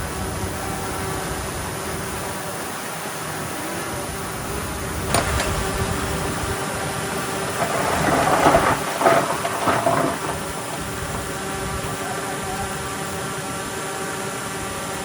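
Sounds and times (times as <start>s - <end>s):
heavy diesel machinery running: 3.1s - 15.0s
clattering and scraping: 7.3s - 11.4s.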